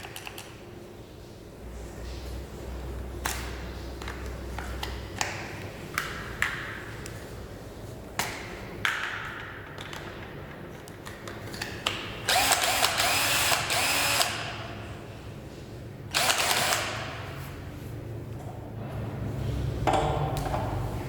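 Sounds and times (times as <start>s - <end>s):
cordless drill clicks: 12.3s - 14.5s, 16.1s - 17.2s
cordless drill running: 12.3s - 14.6s, 16.1s - 17.2s.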